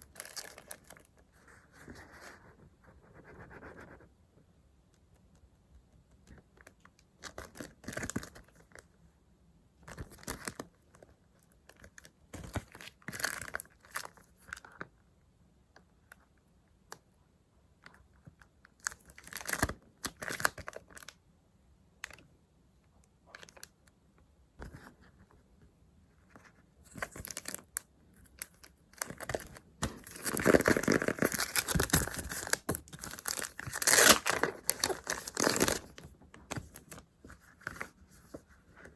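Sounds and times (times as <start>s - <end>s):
paper rustling and crinkling: 28.4s - 38.9s.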